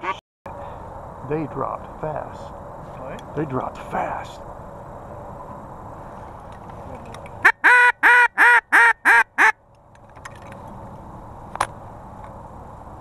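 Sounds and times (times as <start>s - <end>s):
steady background noise: 0.0s - 13.0s
duck quacking: 7.4s - 9.6s.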